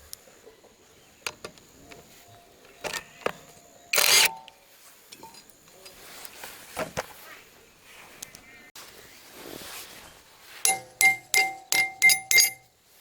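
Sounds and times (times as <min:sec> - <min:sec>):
metal clicks and knocks: 0:01.2 - 0:03.4, 0:10.7 - 0:12.6.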